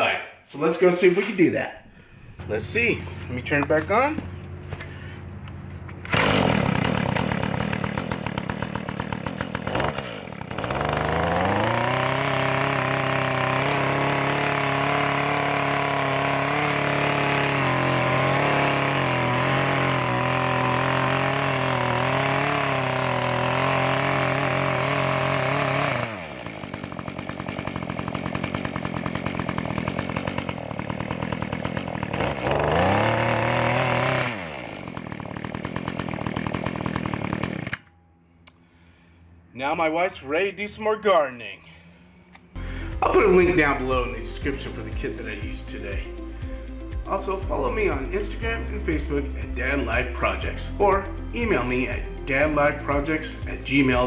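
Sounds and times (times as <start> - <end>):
two-stroke tiller engine revving: 6.0 - 37.9.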